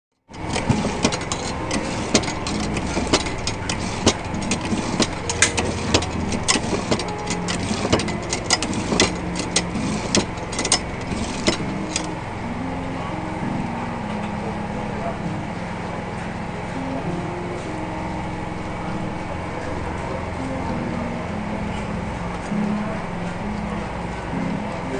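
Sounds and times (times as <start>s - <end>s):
sharp clicks and knocks: 0.3s - 12.2s
steady mechanical hum: 0.3s - 24.9s.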